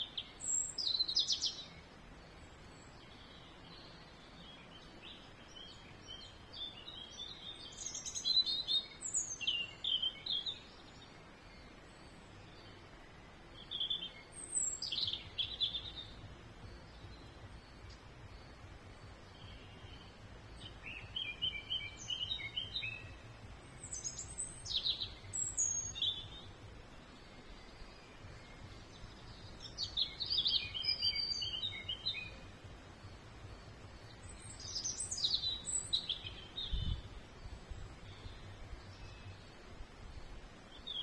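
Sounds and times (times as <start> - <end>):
songbird chirps and trills: 0.0 - 41.0.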